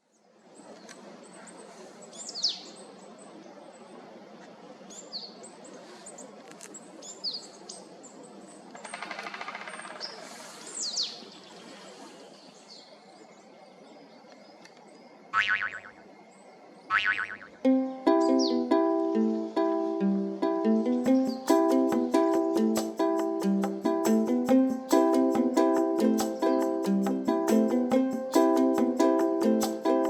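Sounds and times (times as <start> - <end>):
woodpecker drumming: 8.7 - 10.4, 20.8 - 30.0
birds calling: 15.4 - 16.1, 16.8 - 17.6.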